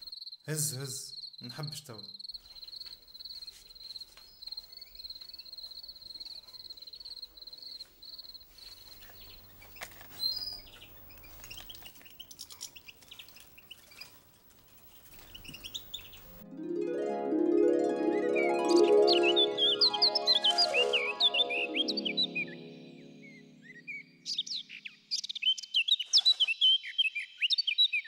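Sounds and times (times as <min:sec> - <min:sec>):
cricket trilling: 0:00.0 - 0:14.2
small birds chirping: 0:00.0 - 0:16.4, 0:18.6 - 0:28.0.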